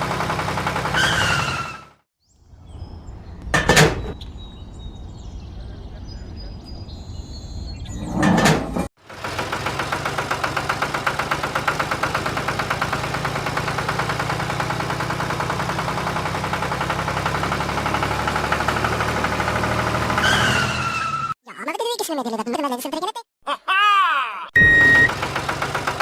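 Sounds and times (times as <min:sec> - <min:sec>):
tractor engine chugging: 0:00.0 - 0:01.7, 0:09.0 - 0:19.9, 0:24.6 - 0:26.0.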